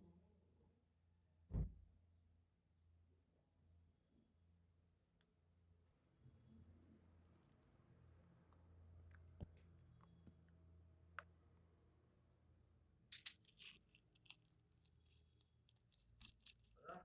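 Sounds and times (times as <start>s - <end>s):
slime crackling and squishing: 13.0s - 17.0s.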